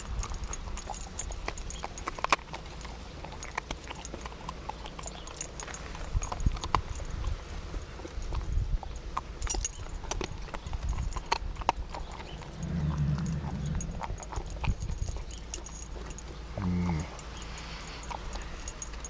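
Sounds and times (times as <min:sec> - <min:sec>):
puppy chewing hard treat: 0:00.0 - 0:19.0
steady low hum: 0:11.2 - 0:19.0.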